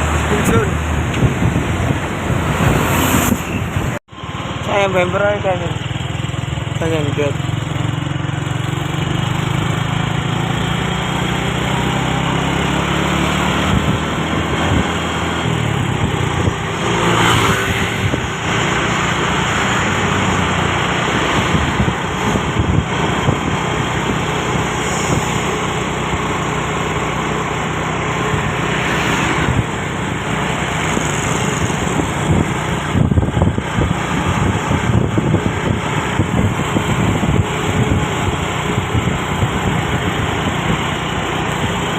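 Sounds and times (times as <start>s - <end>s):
diesel truck engine running: 0.0s - 17.1s, 17.8s - 41.9s
road noise: 0.0s - 41.9s
brief rushing swells: 1.6s - 4.6s.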